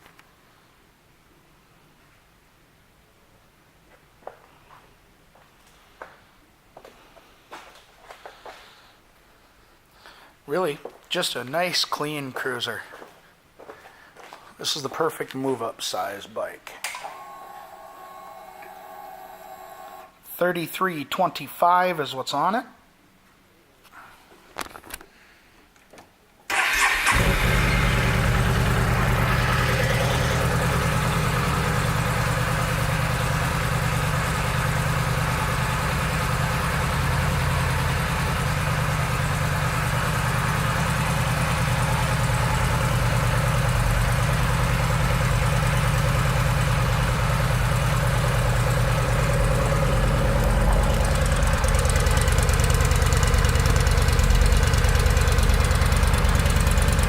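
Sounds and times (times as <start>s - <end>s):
motorcycle engine starting and idling: 26.5s - 57.0s.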